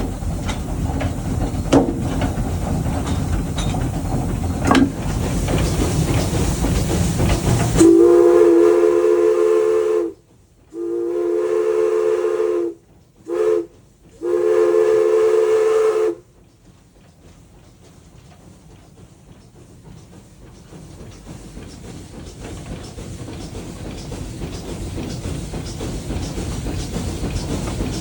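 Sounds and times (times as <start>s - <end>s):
steam locomotive rushing: 0.0s - 28.0s
steam whistle blasts: 7.8s - 16.2s.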